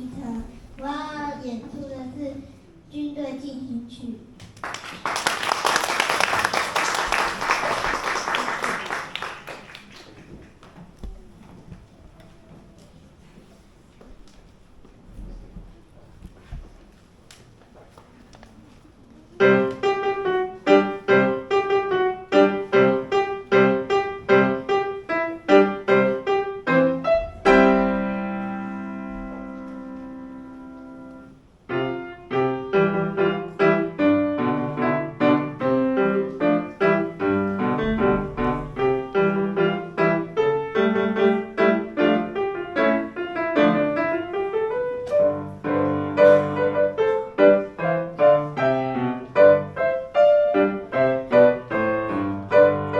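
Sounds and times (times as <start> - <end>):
piano playing march chords: 19.4 - 52.9.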